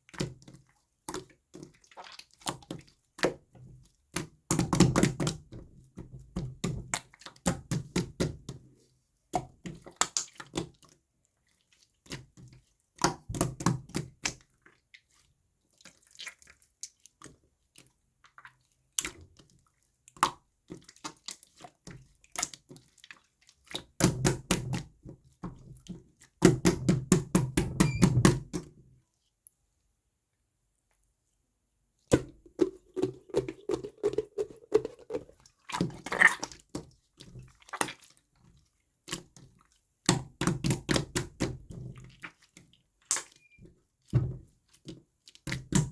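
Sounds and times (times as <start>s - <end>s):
slime squishing with sticky pops: 9.4s - 10.8s, 32.1s - 38.2s, 39.1s - 43.6s, 44.7s - 45.9s.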